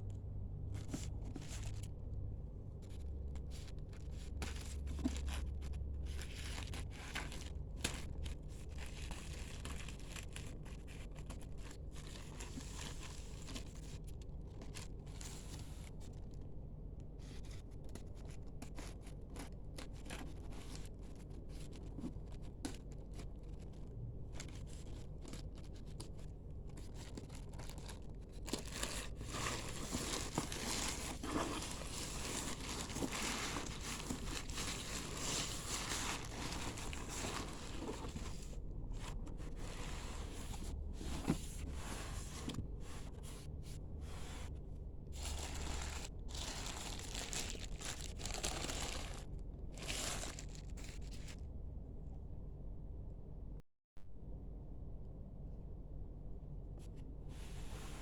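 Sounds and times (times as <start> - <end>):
packaging crinkling and tearing: 4.1 - 15.9, 24.4 - 38.6, 45.2 - 51.4.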